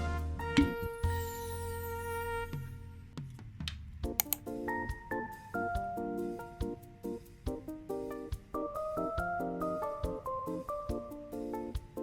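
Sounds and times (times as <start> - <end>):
light instrumental music: 0.0 - 12.0.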